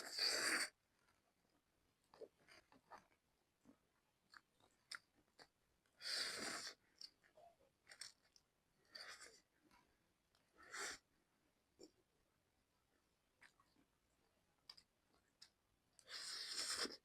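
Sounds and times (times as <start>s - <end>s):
chewing noodles with mouth clicks: 2.1s - 11.0s.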